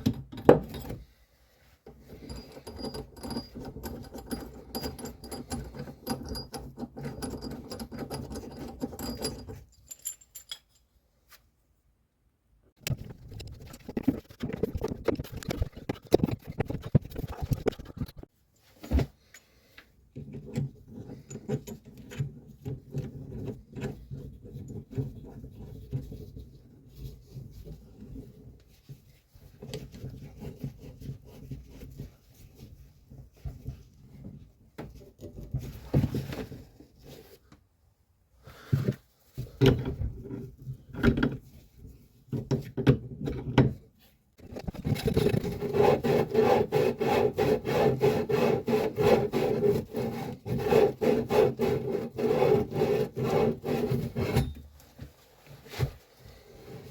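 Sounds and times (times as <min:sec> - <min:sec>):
clicks and knocks of metal parts: 0:02.1 - 0:10.9, 0:44.4 - 0:45.5.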